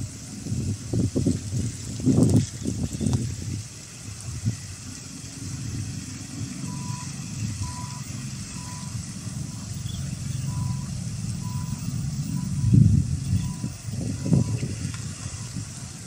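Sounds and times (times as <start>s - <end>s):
diesel locomotive rumble: 0.0s - 16.0s
faint electronic beep: 6.7s - 14.7s.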